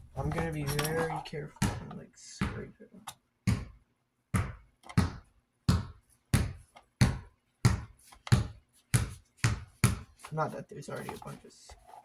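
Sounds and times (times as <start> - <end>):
scraping on a fan surface: 10.2 - 12.0.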